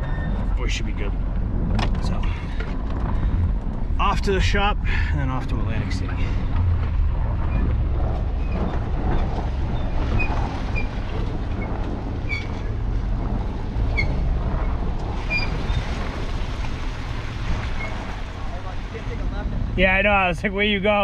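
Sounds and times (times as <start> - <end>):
cab squeaks and rattles: 0.0 - 1.1, 7.1 - 18.6
truck engine and road rumble: 0.0 - 21.0.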